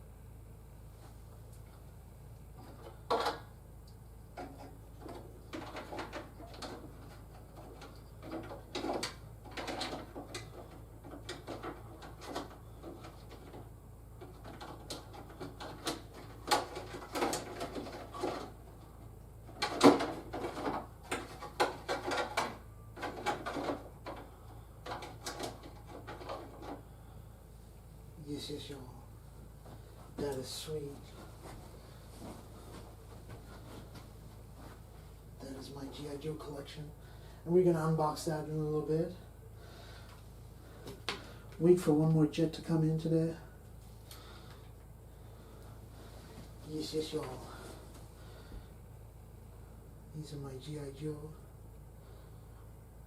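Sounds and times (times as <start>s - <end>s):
faint low hum: 0.0s - 53.0s
plastic toys clicking and knocking: 19.5s - 24.2s.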